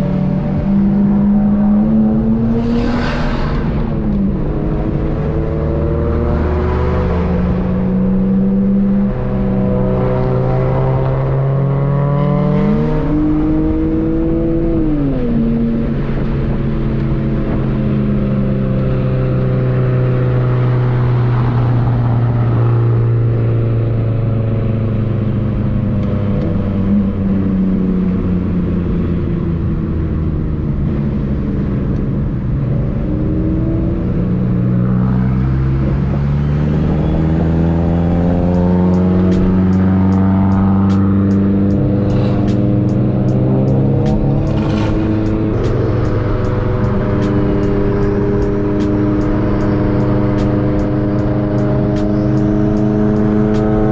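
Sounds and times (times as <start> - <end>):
car engine running: 23.2 - 53.9.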